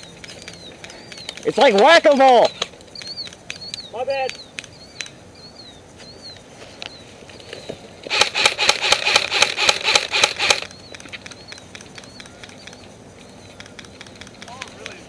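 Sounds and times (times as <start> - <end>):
airsoft rifle firing: 8.1 - 10.7.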